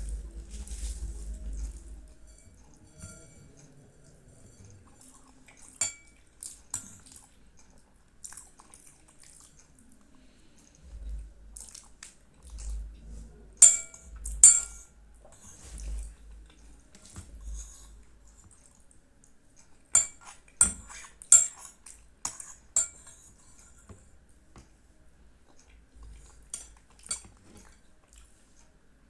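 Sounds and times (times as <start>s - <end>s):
metal spoon clinking on bowl: 2.3s - 3.7s, 5.8s - 7.0s, 13.6s - 14.9s, 20.0s - 23.3s.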